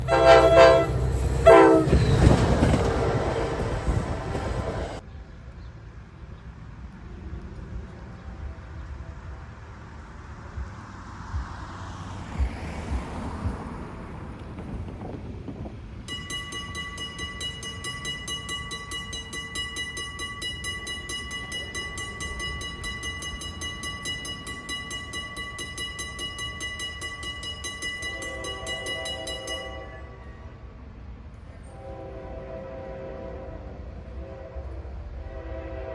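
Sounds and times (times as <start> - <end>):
locomotive horn blasts: 0.0 - 4.8, 27.9 - 30.6, 31.7 - 35.9
crossing warning bell dinging: 0.0 - 5.0, 14.3 - 35.9
train rumbling and clattering: 0.0 - 35.9.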